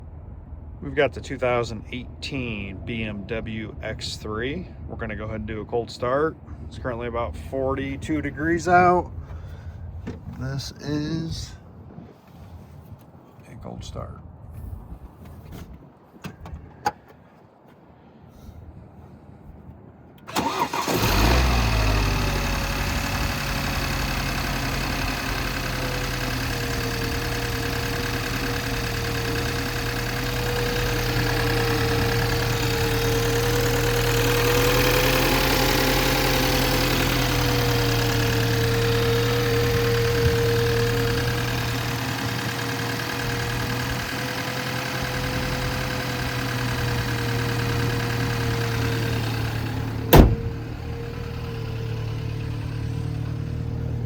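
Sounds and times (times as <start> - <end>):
car engine cold start: 20.2 - 54.0
engine idling with whine: 20.2 - 54.0.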